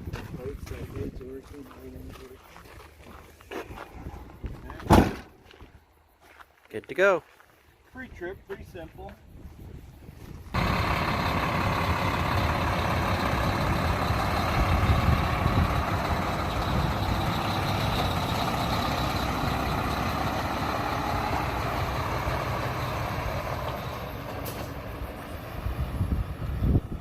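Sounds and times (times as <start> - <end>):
truck diesel engine running: 10.5 - 27.0.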